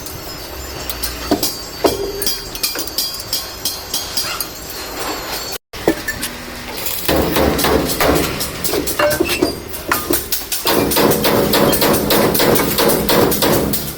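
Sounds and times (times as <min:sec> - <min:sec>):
metal parts clinking: 0:00.0 - 0:13.1
hammer tapping metal: 0:00.8 - 0:04.7, 0:07.0 - 0:13.9.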